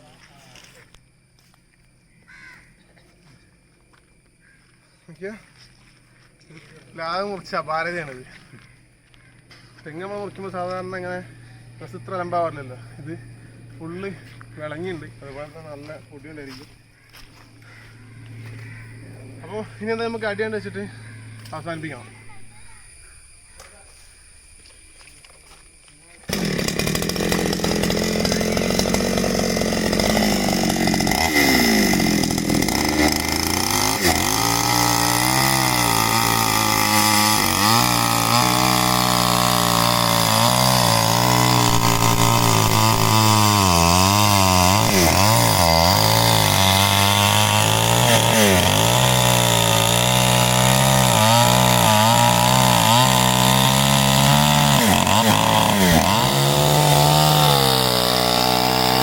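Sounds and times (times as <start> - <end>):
chainsaw cutting wood: 26.3 - 59.0.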